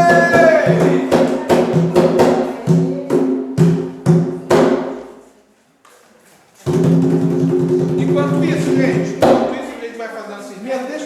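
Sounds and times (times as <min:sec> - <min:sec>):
sung chant: 0:00.0 - 0:03.4
drums beating steady rhythm: 0:00.0 - 0:05.2, 0:06.6 - 0:09.8.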